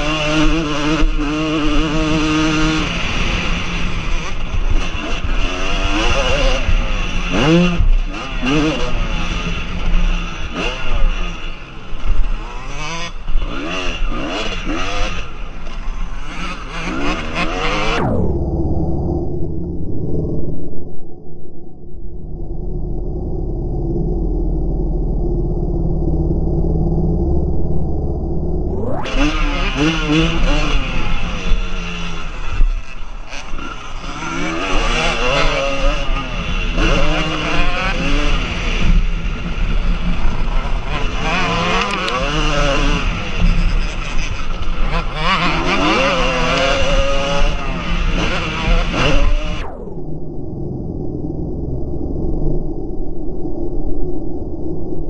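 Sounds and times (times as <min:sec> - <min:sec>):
dirt bike engines revving: 0:00.0 - 0:18.3, 0:27.8 - 0:49.7.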